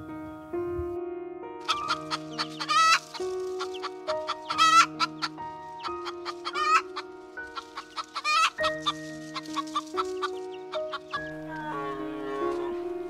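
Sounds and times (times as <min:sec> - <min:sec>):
background music with held notes: 0:00.0 - 0:13.0
animal clucking calls: 0:01.6 - 0:11.3.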